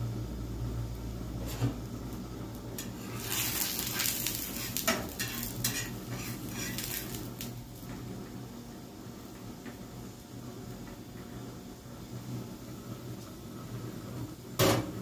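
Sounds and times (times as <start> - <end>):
sandwich frying in oil: 0.0 - 15.0
metal spatula scraping and tapping pan: 2.8 - 7.2.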